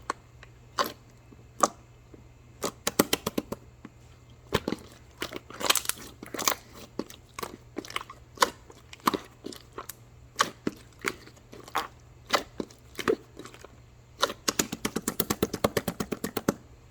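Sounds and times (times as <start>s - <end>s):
faint steady hum: 0.0s - 16.9s
sharp clicks and taps: 2.8s - 3.6s, 14.5s - 16.6s.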